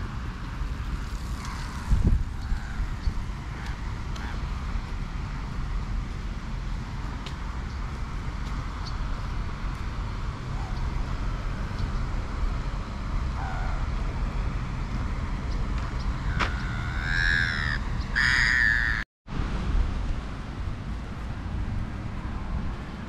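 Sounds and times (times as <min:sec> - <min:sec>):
traffic rumble: 0:00.0 - 0:23.0
wind: 0:00.0 - 0:23.0
large bird calling: 0:13.3 - 0:13.9, 0:16.2 - 0:19.0.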